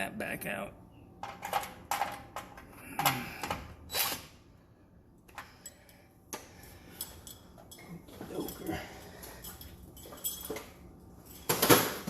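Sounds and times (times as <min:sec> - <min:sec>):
tools clicking and knocking: 0:01.2 - 0:03.6.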